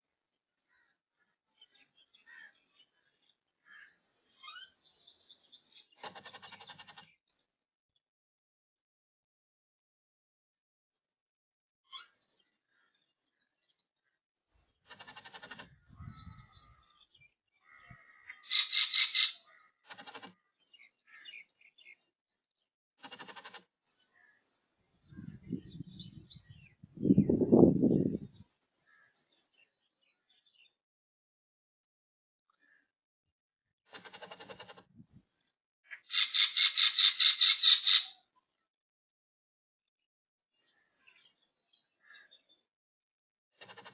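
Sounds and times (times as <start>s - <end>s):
small birds chirping: 0.5s - 7.6s, 11.8s - 30.8s, 33.9s - 38.7s, 40.4s - 42.7s.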